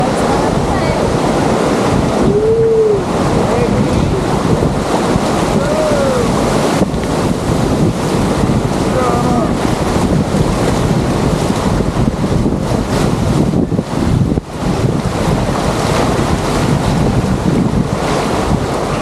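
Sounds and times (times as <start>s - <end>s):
rushing water: 0.0s - 19.0s
wind buffeting microphone: 0.0s - 19.0s.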